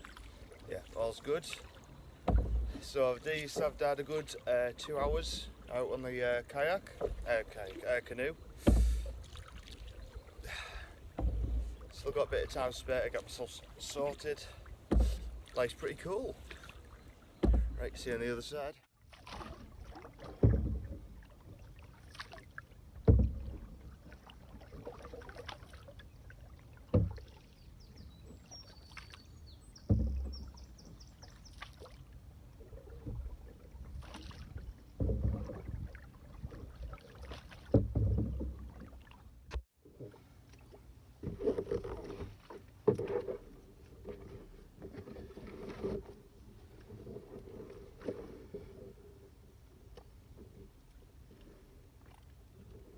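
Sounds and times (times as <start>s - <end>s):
water washing: 0.0s - 18.3s
light wind: 0.0s - 52.9s
paddle splashing through water: 0.0s - 52.9s.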